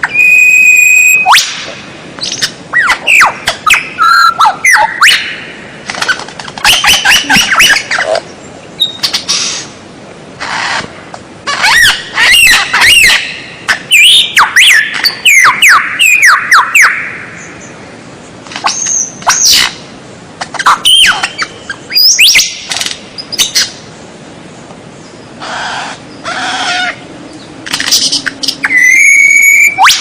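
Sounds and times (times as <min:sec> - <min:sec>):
bird whistling song: 0:00.0 - 0:01.6, 0:02.2 - 0:05.4, 0:06.0 - 0:08.1, 0:08.8 - 0:09.6, 0:11.6 - 0:17.7, 0:20.5 - 0:23.7, 0:26.7 - 0:30.0
harsh squawk-like bird calls: 0:00.0 - 0:09.8, 0:10.4 - 0:17.8, 0:18.5 - 0:19.8, 0:20.4 - 0:23.8, 0:25.3 - 0:30.0.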